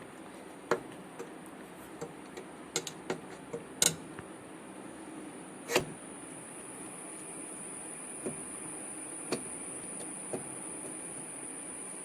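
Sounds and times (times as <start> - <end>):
tools clicking and knocking: 2.0 - 4.0.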